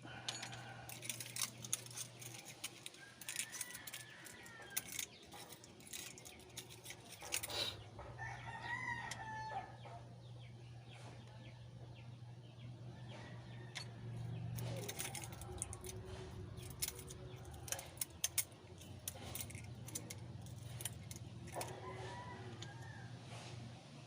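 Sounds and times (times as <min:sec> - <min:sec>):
metal hand tools clinking: 0:00.2 - 0:07.8, 0:14.6 - 0:21.8.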